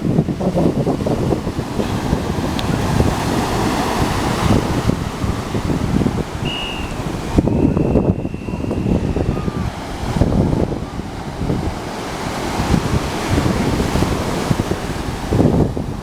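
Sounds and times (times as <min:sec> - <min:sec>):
ocean surf: 0:00.0 - 0:16.0
wind buffeting microphone: 0:00.0 - 0:16.0
faint thin high tone: 0:06.4 - 0:09.7.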